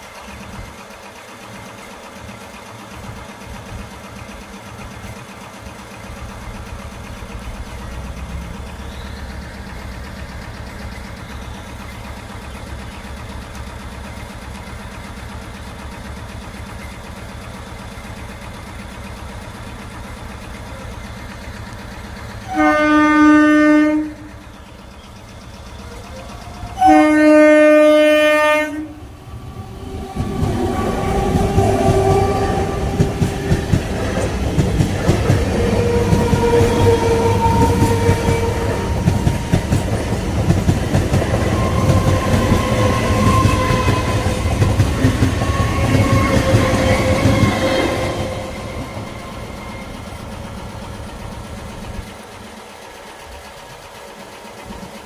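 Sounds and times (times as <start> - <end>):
train rumbling: 0.0 - 55.0
train air horn blasts: 22.4 - 24.5, 25.9 - 29.0, 30.1 - 33.7, 35.6 - 39.5, 41.4 - 50.2.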